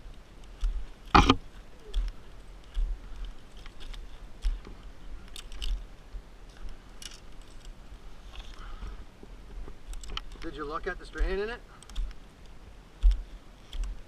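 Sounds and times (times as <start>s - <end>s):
short clicks and knocks: 1.2s - 1.4s.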